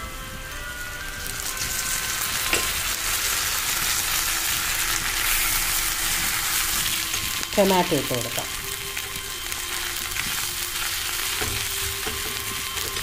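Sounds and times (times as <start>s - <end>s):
onions sizzling in oil: 0.0s - 13.0s
knock on pan: 11.4s - 12.4s.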